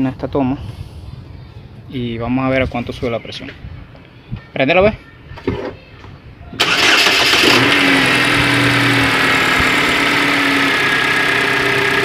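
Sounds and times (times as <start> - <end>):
car engine starting and idling: 6.6 - 12.0.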